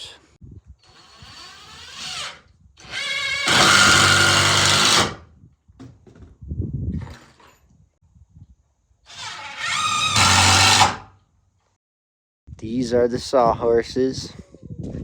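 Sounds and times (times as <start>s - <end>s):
power drill driving screws: 0.8s - 5.2s, 9.1s - 11.1s.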